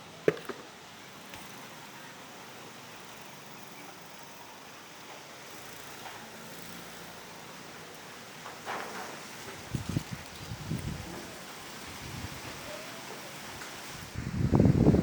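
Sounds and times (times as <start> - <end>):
wind blowing: 6.2 - 15.0.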